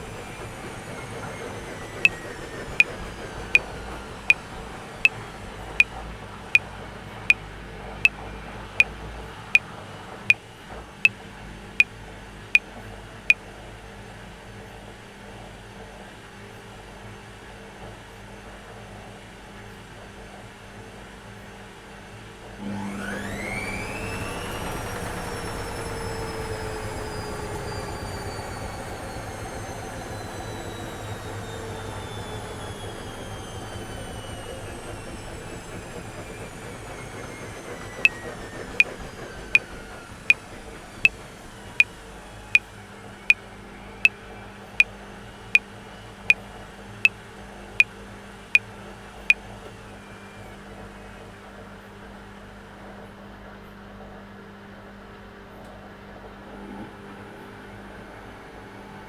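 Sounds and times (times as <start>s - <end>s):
washing machine motor whine: 22.6s - 41.4s.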